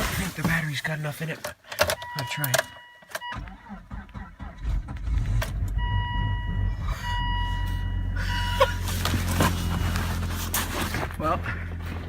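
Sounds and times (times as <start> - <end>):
car engine cranking and starting: 3.1 - 12.0
electronic warning tone: 5.8 - 8.6.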